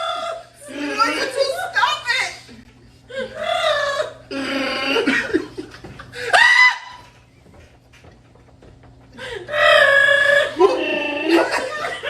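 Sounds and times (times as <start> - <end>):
woman's howling laugh: 3.1 - 7.1, 9.4 - 12.0.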